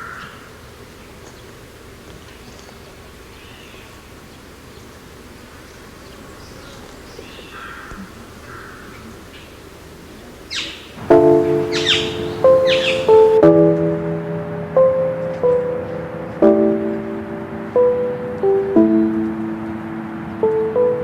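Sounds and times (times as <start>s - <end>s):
low outdoor background: 0.6s - 21.0s
birds chirping: 10.4s - 13.4s.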